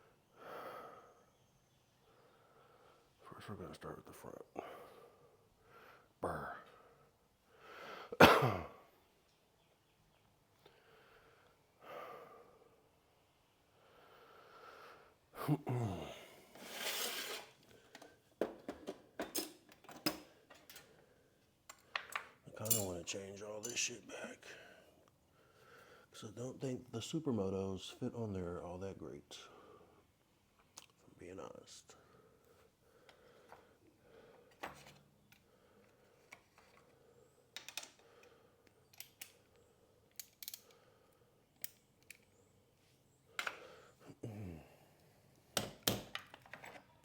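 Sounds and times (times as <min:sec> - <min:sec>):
scraping rustle: 0:16.5 - 0:17.6
metal tools clicking and knocking: 0:17.9 - 0:20.9, 0:21.7 - 0:23.9, 0:37.6 - 0:38.0, 0:38.9 - 0:39.4, 0:40.1 - 0:40.8.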